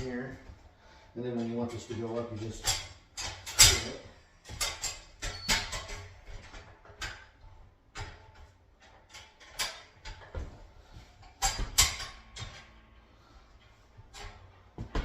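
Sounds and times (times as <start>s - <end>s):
metal clicks and clunks: 1.4s - 13.0s.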